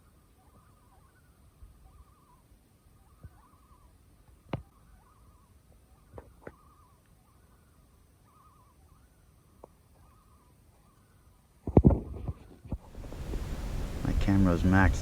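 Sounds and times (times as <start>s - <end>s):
distant bird trill: 0.0s - 11.6s, 12.8s - 15.0s.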